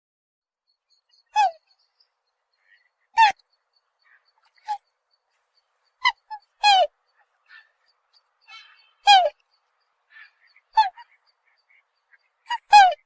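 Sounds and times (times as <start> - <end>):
swan honking: 6.0 - 9.4, 10.1 - 13.0.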